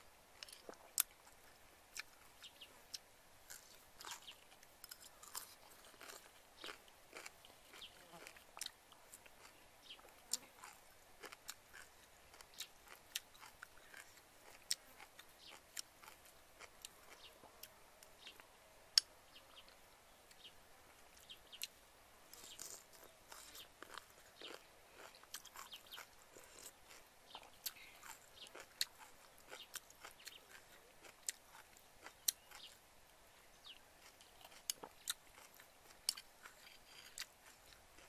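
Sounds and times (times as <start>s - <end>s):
quiet chewing: 0.4s - 38.0s.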